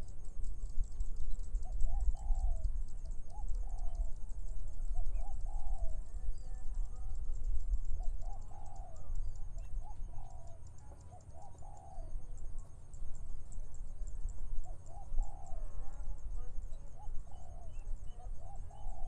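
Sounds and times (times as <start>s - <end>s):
wind rumble on microphone: 0.0s - 10.6s
doves cooing: 1.8s - 2.7s, 5.0s - 6.4s, 8.0s - 12.3s, 14.6s - 15.7s, 17.0s - 19.0s.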